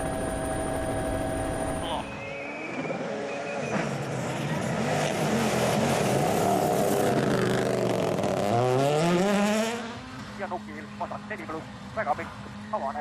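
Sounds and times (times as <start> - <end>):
rally car engine revving high: 3.0 - 11.5.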